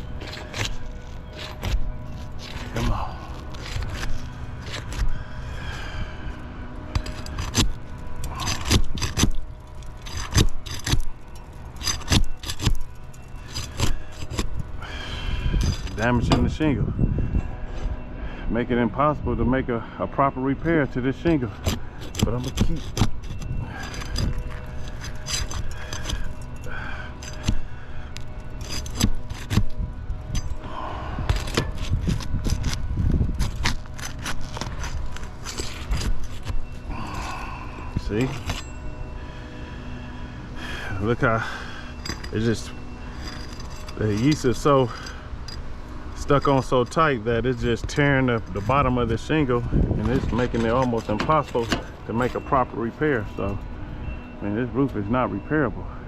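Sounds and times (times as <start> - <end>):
tool scraping roof shingles: 0.0 - 5.3, 6.9 - 14.6, 21.4 - 29.7, 31.3 - 37.4, 46.2 - 53.5
steady low hum: 0.0 - 56.0.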